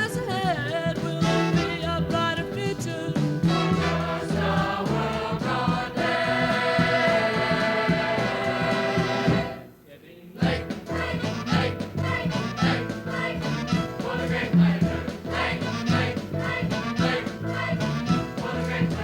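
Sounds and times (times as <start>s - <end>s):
instrumental accompaniment: 0.0s - 9.8s, 10.4s - 19.0s
gospel choir singing: 3.4s - 19.0s.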